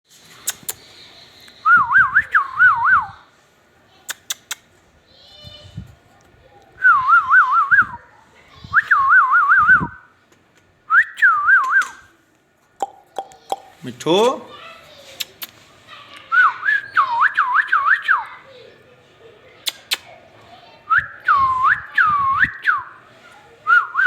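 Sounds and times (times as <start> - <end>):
sharp clicks: 4.1 - 4.7.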